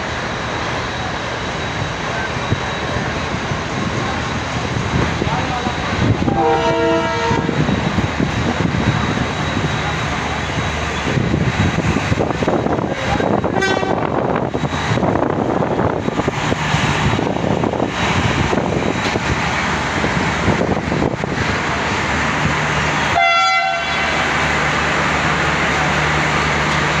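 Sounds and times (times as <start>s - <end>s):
train wheels rumbling and clattering: 0.0s - 27.0s
train horn toot: 6.2s - 7.6s, 12.9s - 14.2s, 23.1s - 24.3s.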